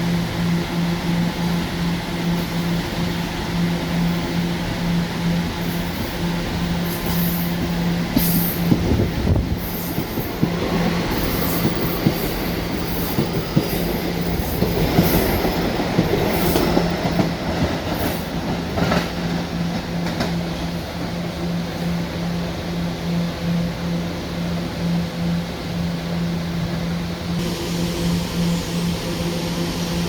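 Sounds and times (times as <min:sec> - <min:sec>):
steady train hum: 0:00.0 - 0:30.0
train wheels clattering over rail joints: 0:06.6 - 0:21.1.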